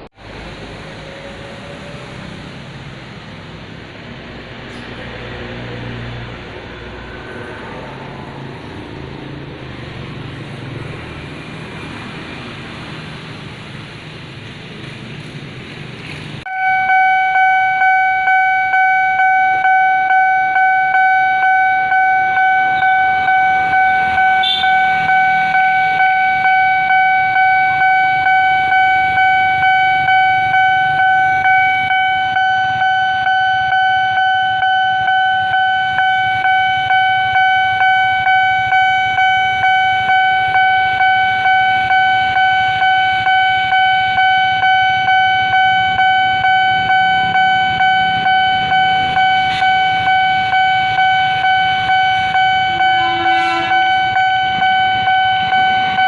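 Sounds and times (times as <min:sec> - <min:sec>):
low rumble of passing traffic: 0:00.0 - 0:56.0
level crossing warning alarm: 0:16.5 - 0:56.0.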